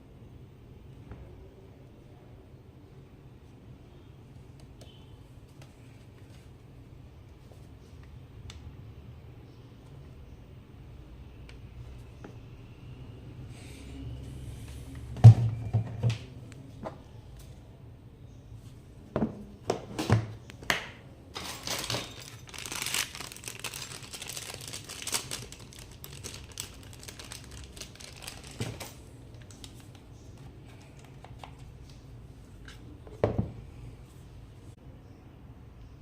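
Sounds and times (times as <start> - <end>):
packaging crinkling and rustling: 21.4 - 31.6.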